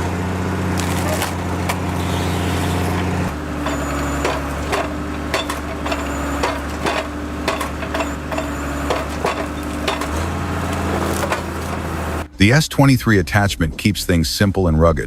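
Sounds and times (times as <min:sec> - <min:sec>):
machine engine running: 0:00.0 - 0:12.6
wood cracking and knocking: 0:00.7 - 0:02.0, 0:08.9 - 0:12.0.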